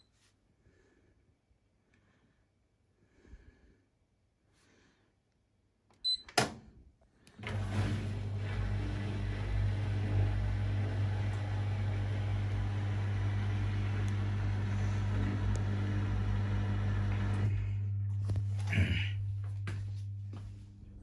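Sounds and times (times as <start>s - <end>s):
washing machine hum: 7.2s - 21.0s.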